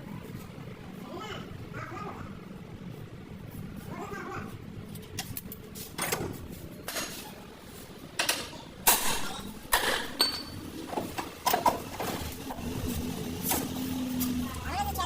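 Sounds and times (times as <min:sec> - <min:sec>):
metal tools clanking: 0:08.2 - 0:12.1.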